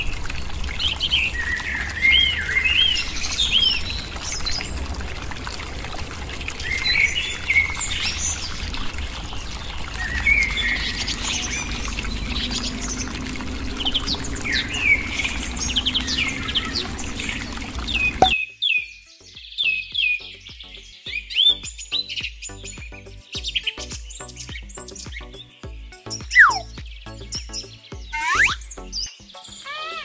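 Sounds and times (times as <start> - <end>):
water pouring in a thin stream: 0.0 - 18.4, 21.2 - 30.0
birds chirping: 6.6 - 30.0
pump humming: 8.7 - 18.3.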